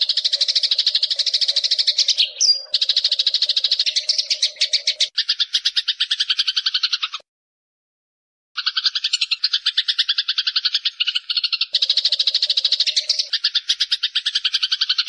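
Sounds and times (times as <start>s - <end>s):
sparrow buzzing trills: 0.0s - 6.7s, 11.0s - 14.9s
high bird chirp: 0.0s - 7.2s, 8.6s - 15.0s.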